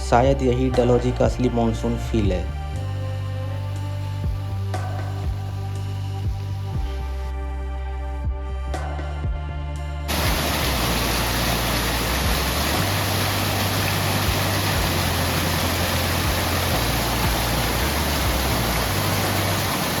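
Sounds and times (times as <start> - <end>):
low bass tones: 0.0 - 20.0
music: 0.0 - 20.0
waterfall roaring: 10.1 - 20.0.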